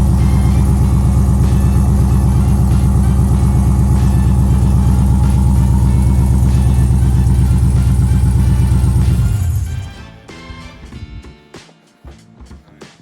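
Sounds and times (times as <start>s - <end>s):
car engine running steadily: 0.0s - 9.9s.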